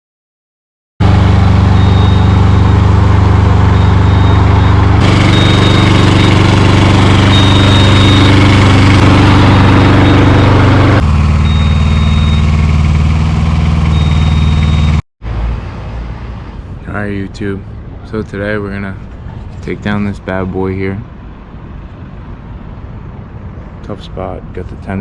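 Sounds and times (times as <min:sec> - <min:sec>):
engine idling and revving: 0:01.0 - 0:16.8.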